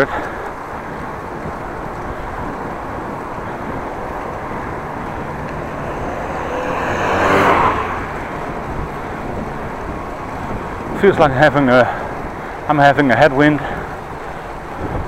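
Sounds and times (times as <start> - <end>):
wind and road rush: 0.0 - 15.0
motor vehicle passing: 0.6 - 11.1.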